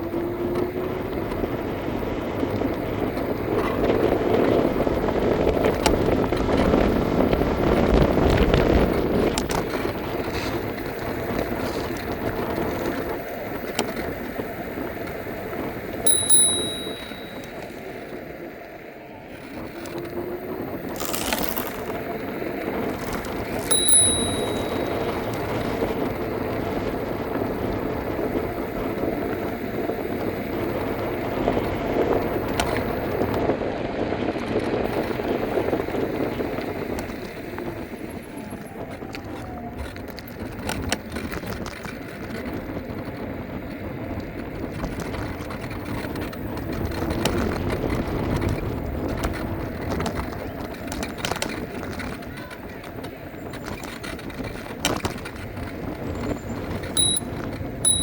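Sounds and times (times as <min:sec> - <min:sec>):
scooter rolling noise: 0:00.0 - 0:16.0
short high ding: 0:16.1 - 0:17.7, 0:23.6 - 0:25.4, 0:57.0 - 0:57.3.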